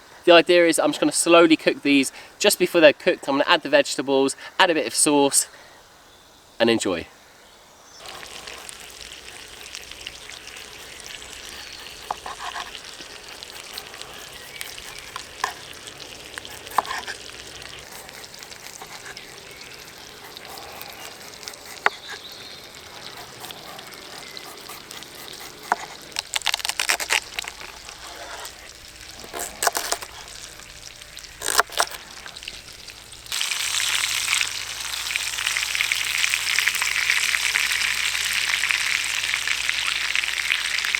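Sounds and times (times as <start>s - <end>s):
chicken sizzling in a pan: 8.0s - 26.1s, 32.0s - 40.9s
campfire crackles: 8.0s - 40.9s.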